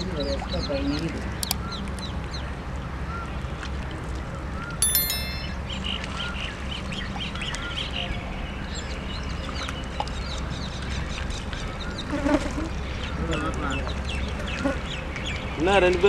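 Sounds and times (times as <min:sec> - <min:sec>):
bell chime: 0:04.8 - 0:06.0.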